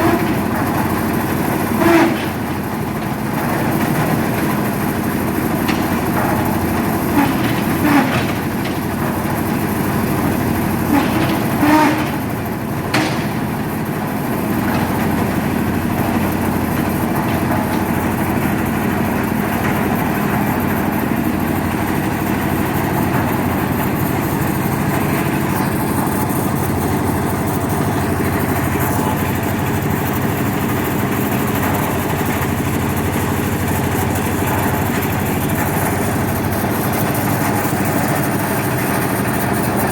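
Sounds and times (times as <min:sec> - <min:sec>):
diesel engine running: 0:00.0 - 0:39.9
short knocks: 0:05.6 - 0:18.8.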